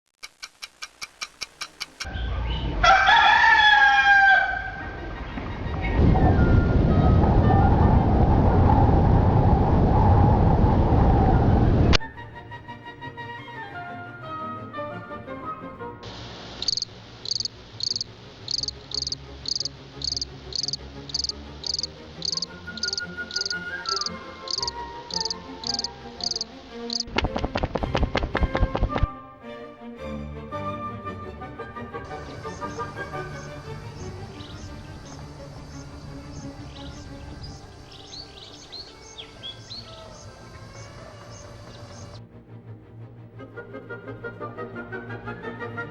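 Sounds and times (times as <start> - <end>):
clock ticking: 0.2 - 2.1, 16.6 - 27.2
rooster crowing: 2.1 - 5.0, 16.7 - 27.0
soft background music: 12.0 - 45.9
cricket chirping: 16.5 - 27.1, 32.2 - 42.2.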